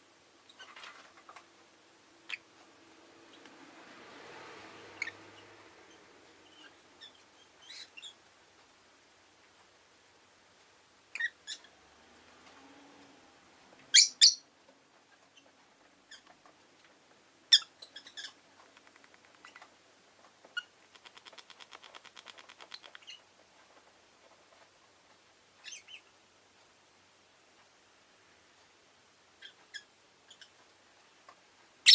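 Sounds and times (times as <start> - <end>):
lovebirds shrill calls: 5.0 - 5.2, 13.9 - 14.5
soft fast bird chattering: 20.6 - 23.2.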